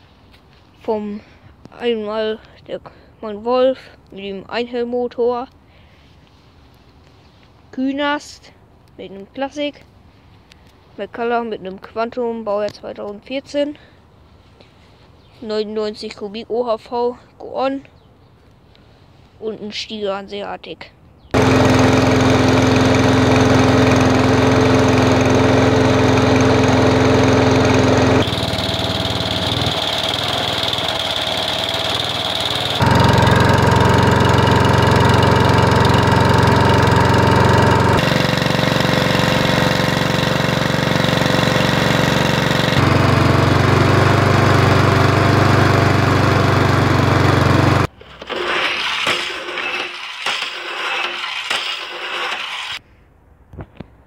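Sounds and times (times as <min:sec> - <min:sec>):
lawn mower engines running: 0:21.4 - 0:50.2.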